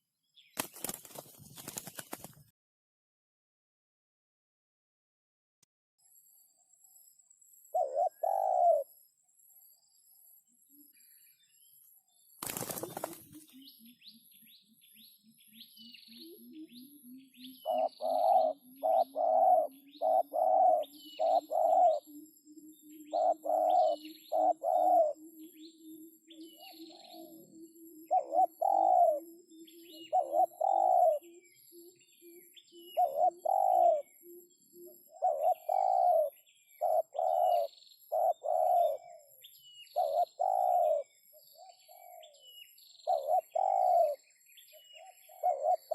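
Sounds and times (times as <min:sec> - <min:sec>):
small birds chirping: 0:00.2 - 0:02.5, 0:06.0 - 0:45.9
dove cooing: 0:07.8 - 0:08.9, 0:12.5 - 0:14.2, 0:15.4 - 0:44.2, 0:45.0 - 0:45.9.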